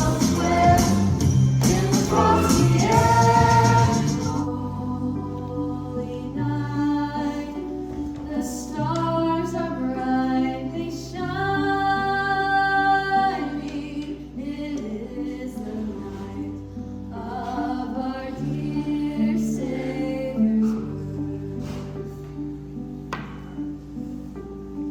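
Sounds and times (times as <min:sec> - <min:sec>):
instrumental accompaniment: 0:00.0 - 0:05.9
voices singing a carol: 0:00.0 - 0:07.7, 0:08.3 - 0:22.0.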